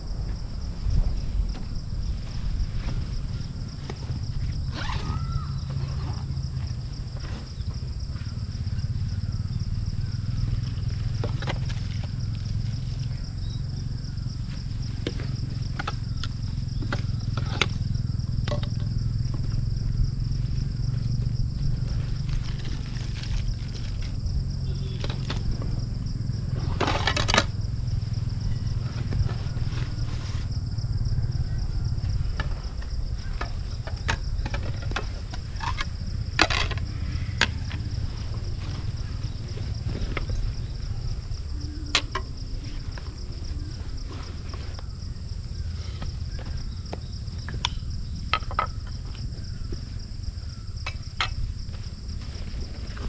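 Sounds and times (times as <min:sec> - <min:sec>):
insects chirring: 0:00.0 - 0:53.0
rustling: 0:20.4 - 0:24.2.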